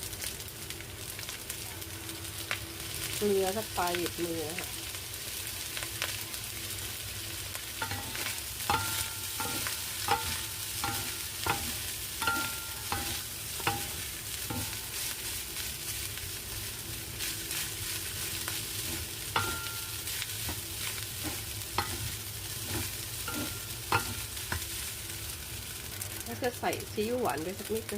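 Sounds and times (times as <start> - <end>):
rice sizzling in a pan: 0.0 - 27.9
metal spatula clanking on pan: 7.8 - 14.9, 18.9 - 20.6, 21.2 - 24.6.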